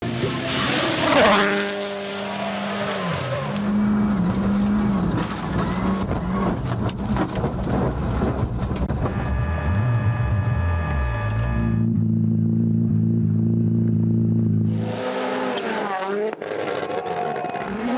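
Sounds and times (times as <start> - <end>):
rally car engine revving: 0.0 - 17.9
gravel crackling and rattling: 3.5 - 10.0.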